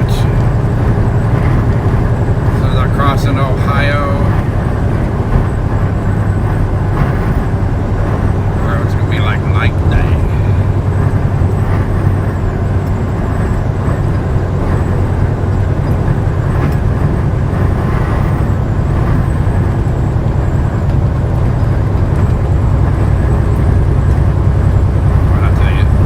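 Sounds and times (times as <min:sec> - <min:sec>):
truck engine drone: 0:00.0 - 0:26.0.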